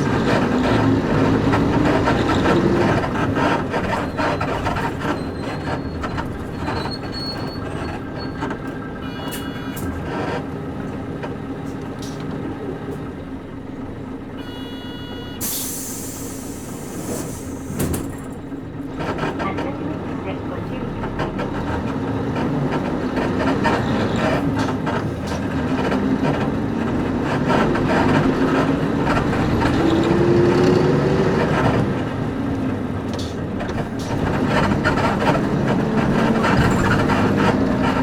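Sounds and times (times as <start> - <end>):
bus diesel engine running: 0.0 - 38.0
electronic beeps: 9.0 - 9.8, 14.4 - 15.4.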